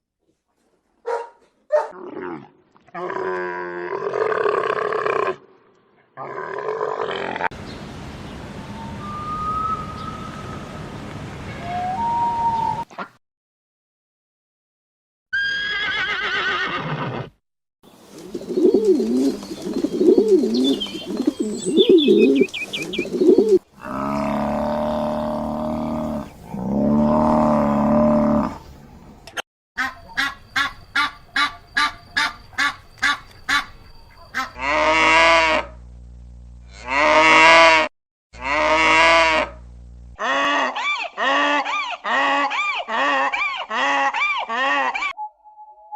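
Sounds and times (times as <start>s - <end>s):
long drawn-out animal calls: 36.7s - 39.6s, 40.2s - 45.2s.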